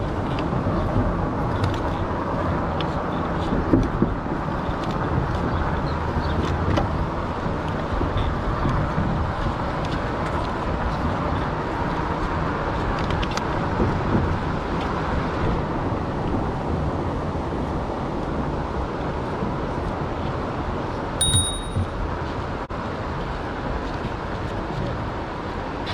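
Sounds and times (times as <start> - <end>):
brief high-pitched ring: 21.2 - 22.0.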